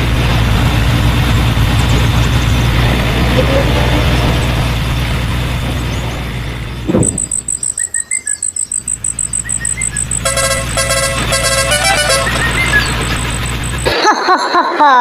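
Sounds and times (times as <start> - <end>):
small vehicle engine running: 0.0 - 14.2
high-pitched pulsing chirp: 6.8 - 13.9
short horn toots: 10.2 - 13.2.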